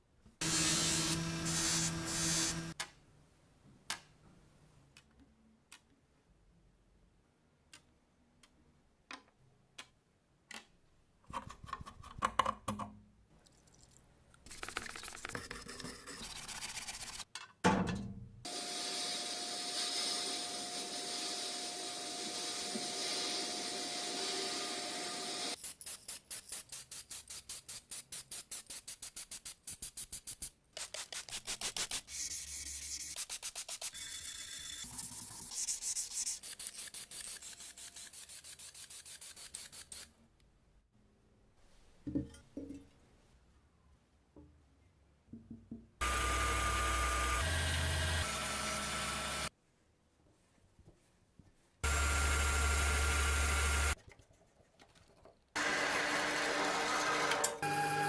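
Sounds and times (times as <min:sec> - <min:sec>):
electric saw running with whine: 0:46.0 - 0:49.5, 0:51.9 - 0:54.0.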